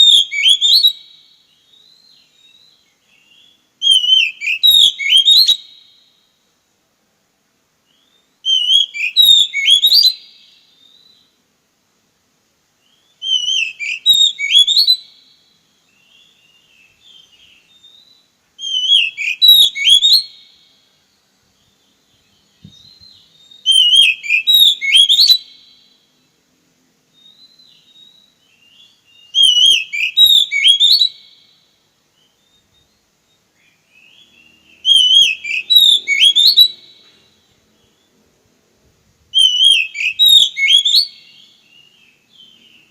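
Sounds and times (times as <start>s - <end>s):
bird singing whistled phrase: 0.0s - 5.8s, 7.9s - 11.3s, 12.8s - 15.1s, 15.9s - 20.4s, 22.3s - 25.8s, 27.2s - 31.5s, 32.2s - 38.1s, 39.3s - 42.9s.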